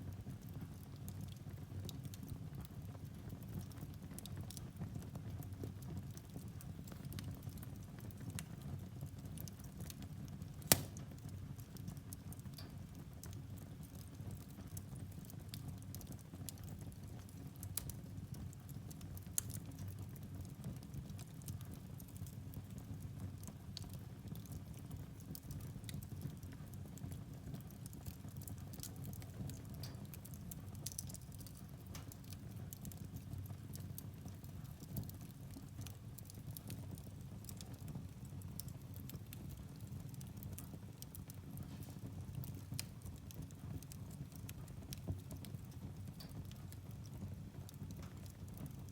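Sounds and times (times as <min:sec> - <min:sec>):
fire rumbling and crackling: 0:00.0 - 0:48.9
sharp pop of burning log: 0:10.5 - 0:11.3.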